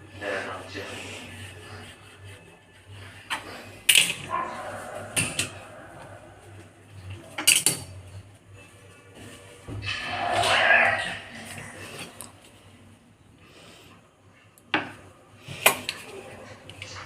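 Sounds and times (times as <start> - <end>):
metal utensils clinking on dishes: 7.3 - 8.0.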